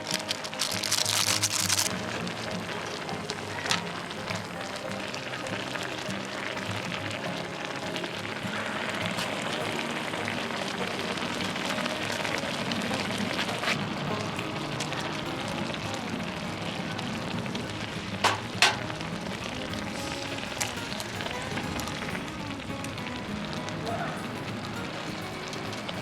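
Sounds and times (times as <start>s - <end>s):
cooking sizzle: 0.0s - 26.0s
sharp pops: 18.1s - 19.1s.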